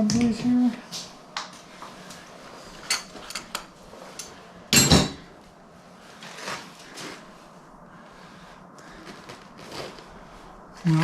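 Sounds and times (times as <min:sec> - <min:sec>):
metal tools clinking and knocking: 0:04.7 - 0:05.2.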